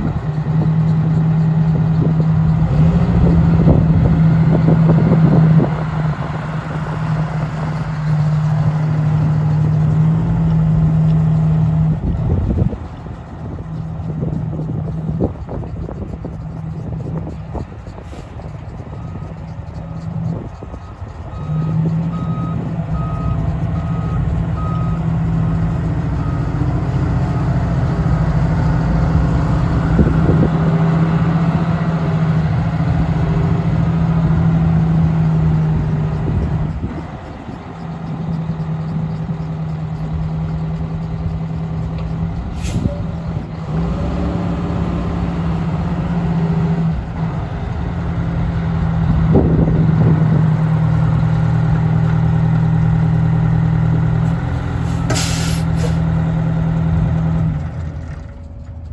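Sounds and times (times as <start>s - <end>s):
diesel engine droning: 0.0s - 58.9s
short hiss: 42.6s - 43.0s, 54.8s - 56.0s.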